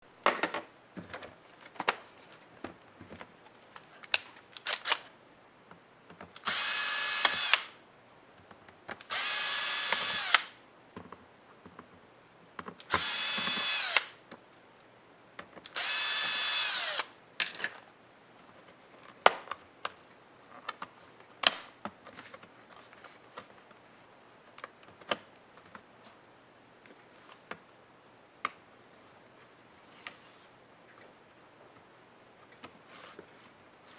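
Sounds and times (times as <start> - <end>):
electric screwdriver running: 6.4 - 7.7, 9.1 - 10.5, 12.9 - 14.1, 15.8 - 17.1.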